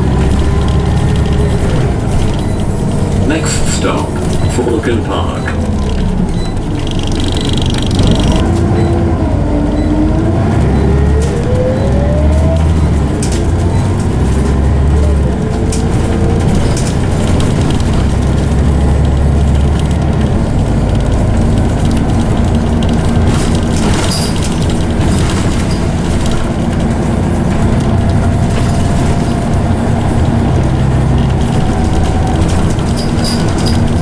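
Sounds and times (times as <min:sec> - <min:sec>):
bus diesel engine: 0:00.0 - 0:34.0
bus gearbox whine: 0:00.0 - 0:34.0.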